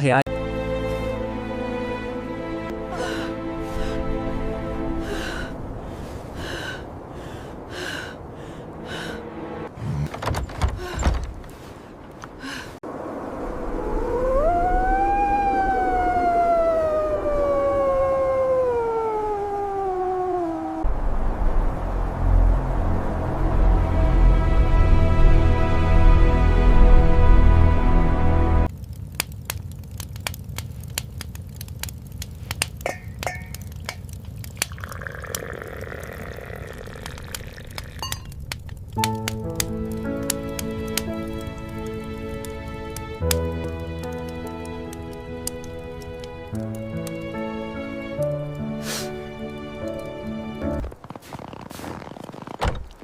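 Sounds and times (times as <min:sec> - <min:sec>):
music: 0:00.3 - 0:05.7, 0:08.8 - 0:09.7, 0:22.2 - 0:28.7, 0:39.0 - 0:50.8
wolf howling: 0:13.8 - 0:20.9
low steady rumble: 0:20.8 - 0:30.0
sharp clicks and crackles: 0:28.7 - 0:35.5, 0:36.9 - 0:47.2
glassy clinks: 0:32.9 - 0:33.6, 0:38.0 - 0:38.3.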